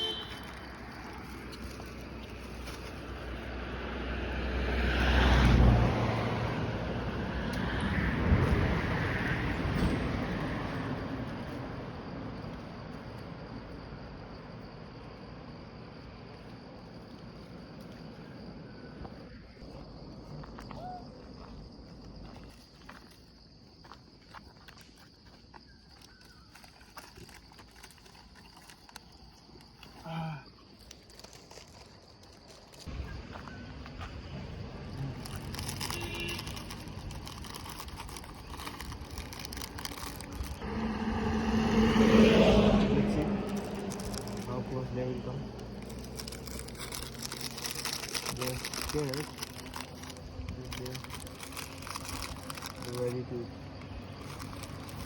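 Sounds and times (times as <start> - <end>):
vehicle passing by: 2.0 - 12.6, 32.9 - 55.0
small clicks and rustles: 24.7 - 30.0, 30.6 - 32.9, 35.1 - 40.6, 45.6 - 55.0.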